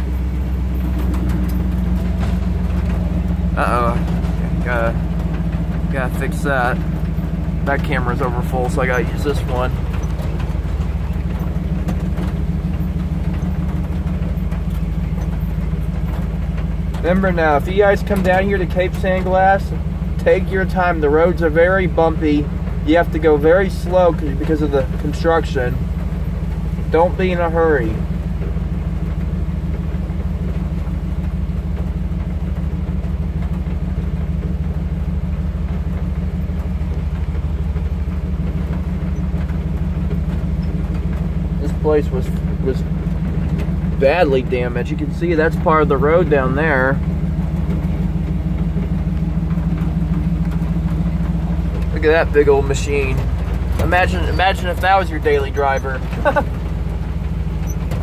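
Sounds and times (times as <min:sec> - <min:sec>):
faint knocks and rattles: 0:00.0 - 0:21.0, 0:28.0 - 0:58.0
truck engine and road drone: 0:00.0 - 0:58.0.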